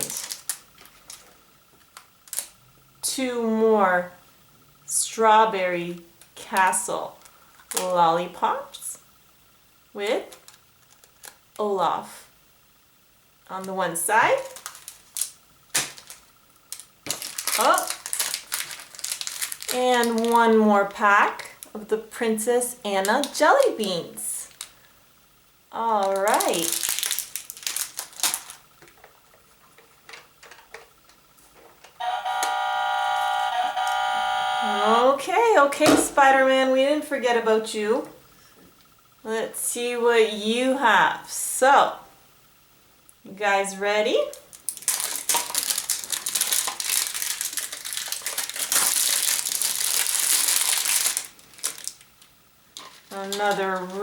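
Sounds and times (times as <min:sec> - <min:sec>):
plastic wrappers crinkling: 0:00.0 - 0:02.6, 0:06.2 - 0:08.0, 0:10.3 - 0:11.6, 0:13.5 - 0:24.9, 0:25.8 - 0:30.9, 0:44.3 - 0:54.0
steady electronic tone: 0:32.0 - 0:35.2.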